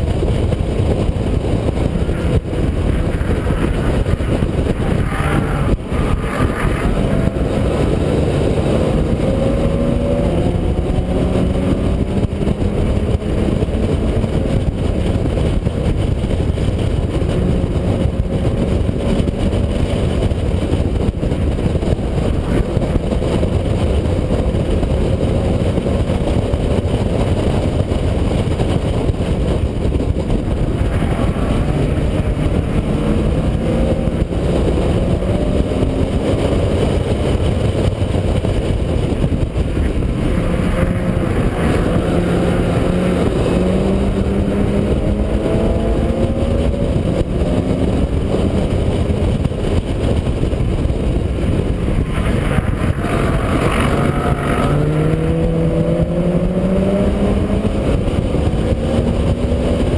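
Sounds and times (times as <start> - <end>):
car engine revving: 0.0 - 59.9
road noise: 0.0 - 59.9
wind noise: 0.0 - 59.9.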